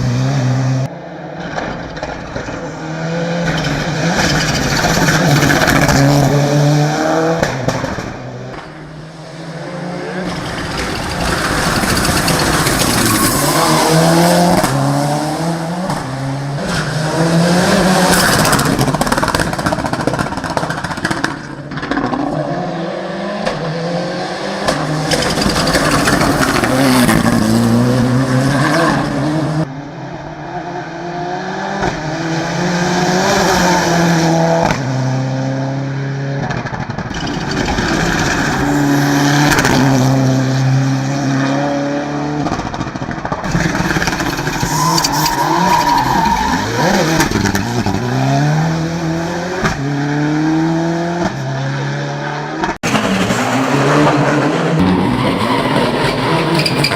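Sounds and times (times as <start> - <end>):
car engine revving through gears: 2.8 - 20.2, 21.8 - 29.7, 37.3 - 42.8, 43.4 - 56.9.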